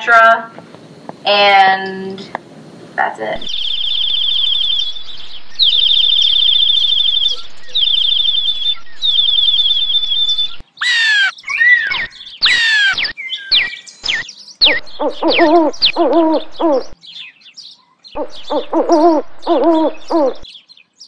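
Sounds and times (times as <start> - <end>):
bird harsh descending calls: 3.4 - 17.0, 18.2 - 20.4
bird high-pitched trills: 3.4 - 17.0, 18.2 - 20.4.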